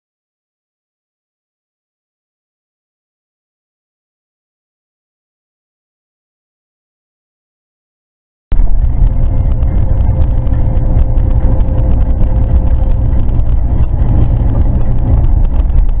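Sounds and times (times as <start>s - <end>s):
car engine and road noise: 8.5s - 16.0s.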